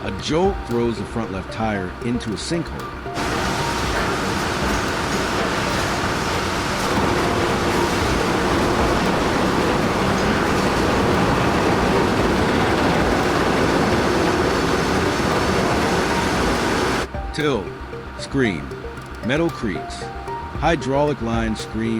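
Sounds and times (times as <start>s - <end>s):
heavy vehicle rumbling: 3.2s - 17.1s.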